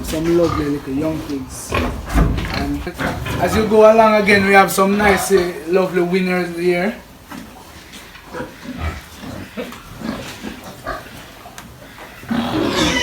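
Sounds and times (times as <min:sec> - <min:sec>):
pigs grunting: 0:00.0 - 0:13.0
loud harsh pig call: 0:08.3 - 0:13.0.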